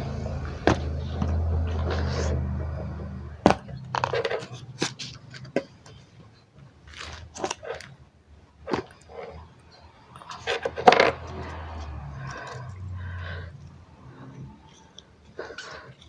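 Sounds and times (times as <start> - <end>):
low hum: 0.0 - 4.2
plastic objects clicking and knocking: 3.4 - 8.0, 8.6 - 9.5, 10.1 - 11.6.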